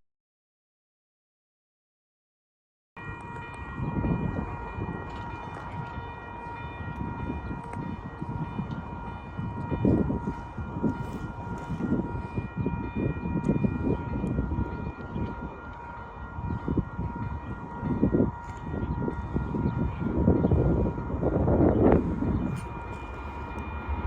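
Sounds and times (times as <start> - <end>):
steady high tone: 3.0 - 24.0
train passing: 3.0 - 24.0.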